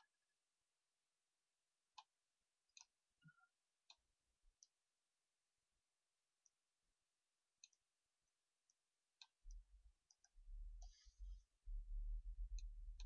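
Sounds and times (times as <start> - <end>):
low rumble: 9.5 - 13.0.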